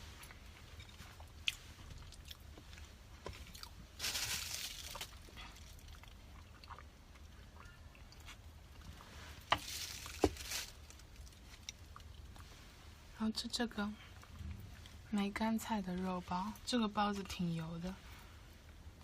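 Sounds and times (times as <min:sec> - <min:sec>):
person chewing food: 0:00.2 - 0:03.8, 0:05.0 - 0:09.2.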